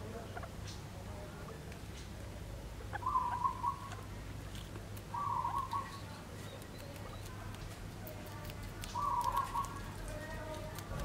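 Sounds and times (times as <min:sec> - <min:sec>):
bird calling: 0:02.9 - 0:04.0, 0:05.1 - 0:07.3, 0:08.9 - 0:09.8.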